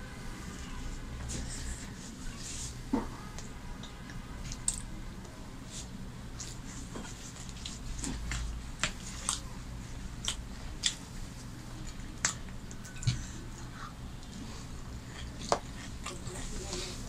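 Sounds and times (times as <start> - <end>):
steady low hum: 0.0 - 17.0
person chewing flatbread: 5.7 - 17.0.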